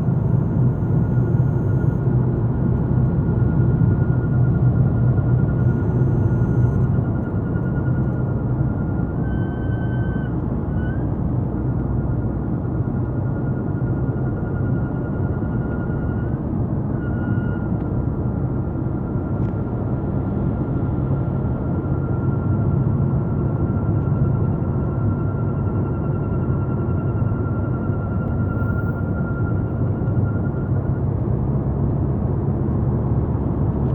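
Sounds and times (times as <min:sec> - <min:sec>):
road and engine rumble: 0:00.0 - 0:33.9.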